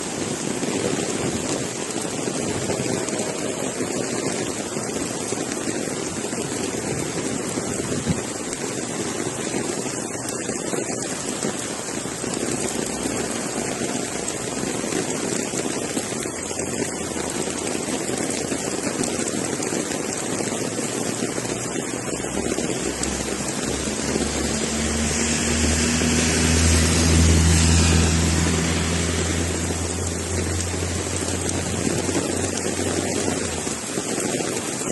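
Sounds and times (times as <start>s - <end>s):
rain falling: 0.0s - 34.9s
passing engine hum: 10.6s - 17.7s, 21.4s - 34.0s.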